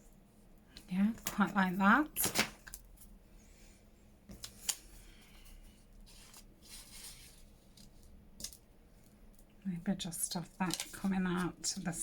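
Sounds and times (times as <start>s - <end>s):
paper rustling: 4.3s - 8.5s.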